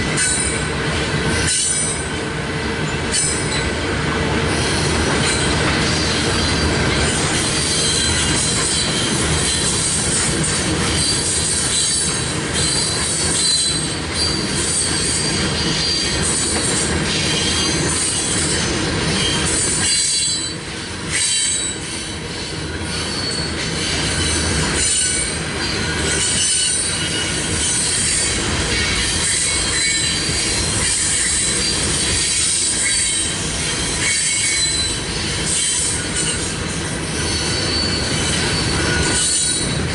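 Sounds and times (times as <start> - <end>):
train wheels rumbling on rail: 0.0 - 39.9
high-pitched wheel squeal: 4.5 - 10.0, 11.0 - 16.2, 19.1 - 39.8.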